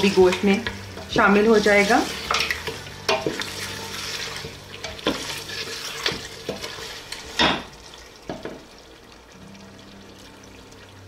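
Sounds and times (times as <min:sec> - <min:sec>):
curry sizzling in a pot: 0:00.0 - 0:11.0
wooden spoon knocking on pot: 0:08.3 - 0:08.6.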